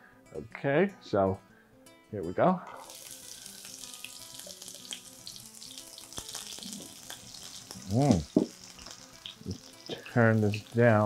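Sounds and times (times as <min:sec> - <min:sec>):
onions sizzling in hot oil: 0:02.8 - 0:11.0.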